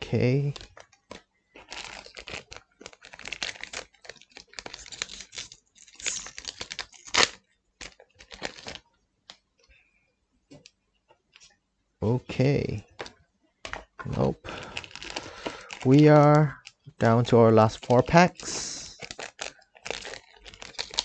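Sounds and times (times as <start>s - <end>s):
wrapper tearing and crinkling: 0.6s - 8.8s, 14.1s - 16.6s, 17.7s - 21.0s.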